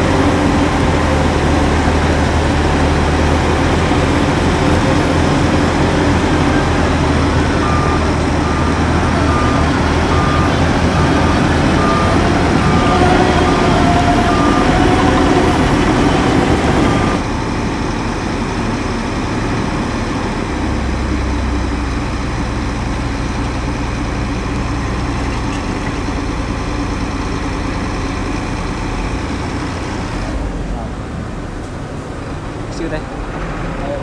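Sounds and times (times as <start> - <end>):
reversing alarm beeping: 0.0 - 18.7
diesel engine drone: 0.0 - 34.0
heavy diesel machinery running: 0.0 - 34.0.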